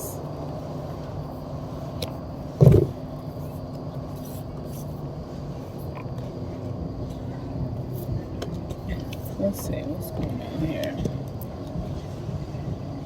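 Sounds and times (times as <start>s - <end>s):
vehicle engine humming: 0.0s - 13.0s
short loud low thud: 2.6s - 3.0s.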